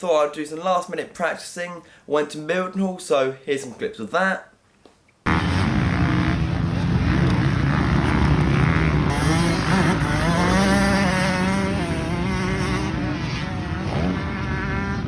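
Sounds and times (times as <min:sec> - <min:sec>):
motocross bike engine revving: 0:05.3 - 0:15.0.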